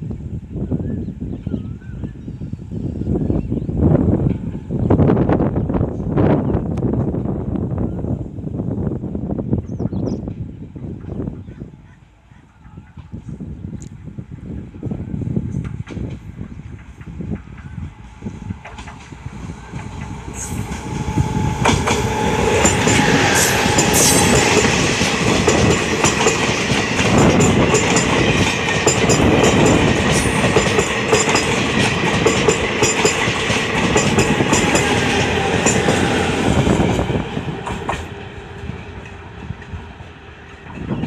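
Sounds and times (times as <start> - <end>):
passenger train passing: 0.0 - 41.0
wheels clacking over rail joints: 21.6 - 36.1.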